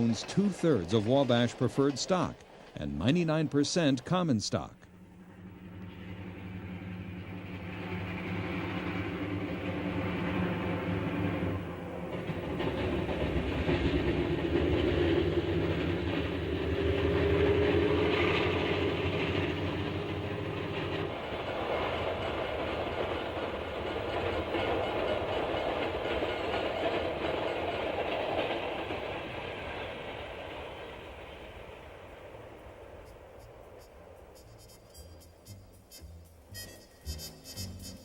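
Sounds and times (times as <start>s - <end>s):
diesel train engine rumble: 0.0s - 38.0s
train rolling noise: 0.0s - 38.0s.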